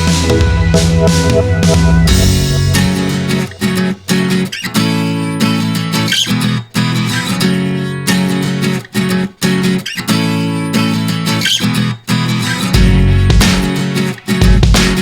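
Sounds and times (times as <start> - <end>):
strummed guitar chords: 0.0 - 6.0, 12.8 - 15.0.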